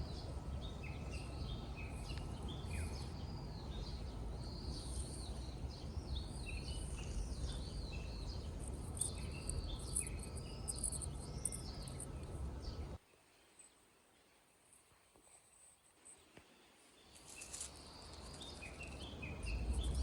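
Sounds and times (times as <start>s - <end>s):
birds chirping: 0.0s - 13.0s, 17.0s - 20.0s
low outdoor rumble: 0.0s - 13.0s, 17.5s - 20.0s
faint insects chirring: 0.0s - 20.0s.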